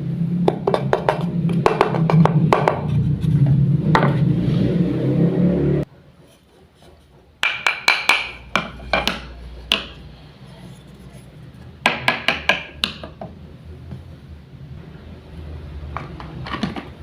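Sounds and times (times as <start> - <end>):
wooden toys clacking: 7.4 - 10.0.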